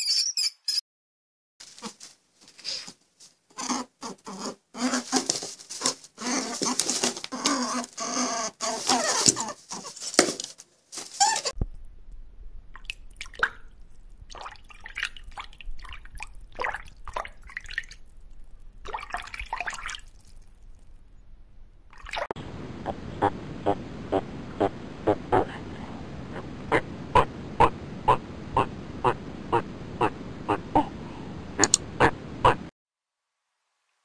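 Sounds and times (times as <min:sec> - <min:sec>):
water dripping: 0:11.6 - 0:21.2, 0:21.9 - 0:25.6, 0:26.3 - 0:32.6
steady low hum: 0:11.6 - 0:32.7
water bubbling: 0:11.6 - 0:32.7.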